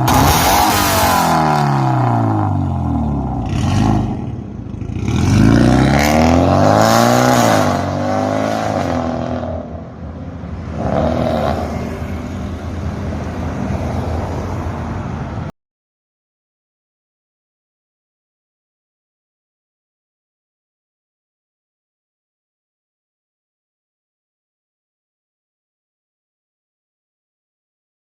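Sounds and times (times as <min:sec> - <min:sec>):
car engine revving and idling: 0:00.0 - 0:13.9.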